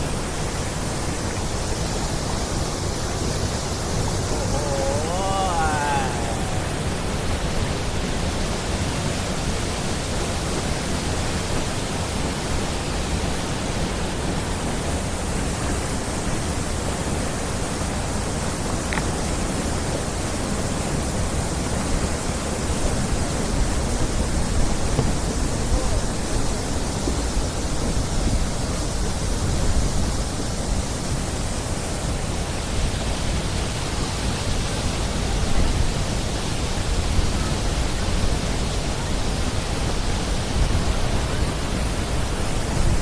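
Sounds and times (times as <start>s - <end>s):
wind buffeting microphone: 19.4s - 33.5s.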